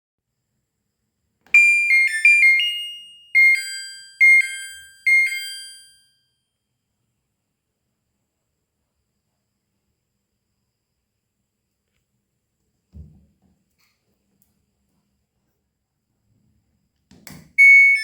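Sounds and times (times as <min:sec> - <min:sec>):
electronic chime melody: 0:01.6 - 0:06.0, 0:17.6 - 0:18.0
two-note beeps: 0:17.6 - 0:18.0.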